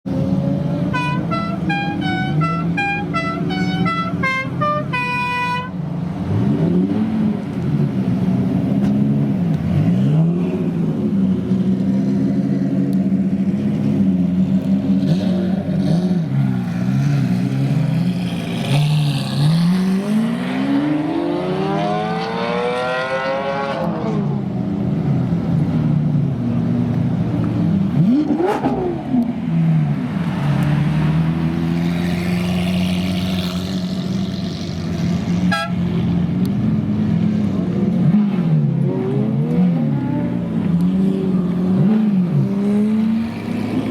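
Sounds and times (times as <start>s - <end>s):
supercar engines revving: 0.1s - 43.9s
musical car horn tune: 0.9s - 5.8s, 35.4s - 35.8s.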